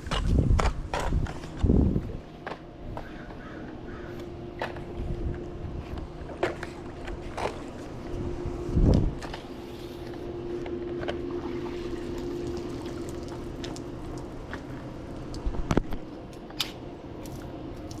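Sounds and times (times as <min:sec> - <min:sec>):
steady hum: 0:00.0 - 0:18.0
pool water trickling: 0:09.4 - 0:18.0.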